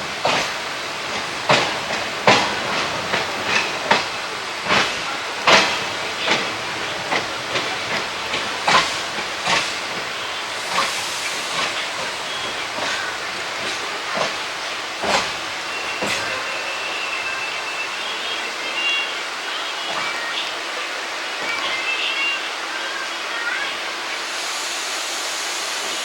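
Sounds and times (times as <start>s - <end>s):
wheels clacking and knocking: 0.0s - 16.6s
train coach rumbling on track: 0.0s - 26.0s.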